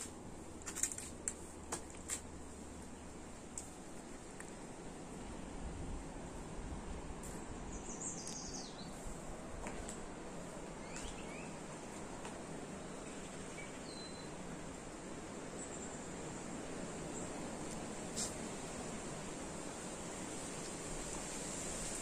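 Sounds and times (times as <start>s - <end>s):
outdoor background noise: 0.0s - 22.0s
bird chirps: 7.7s - 9.0s, 10.8s - 11.6s, 12.9s - 14.3s.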